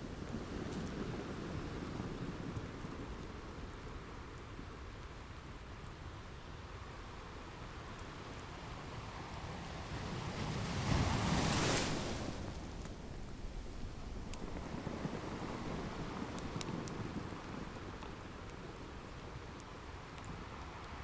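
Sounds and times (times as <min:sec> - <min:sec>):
ocean waves washing: 0:10.0 - 0:18.0
fireplace crackles: 0:10.6 - 0:21.0.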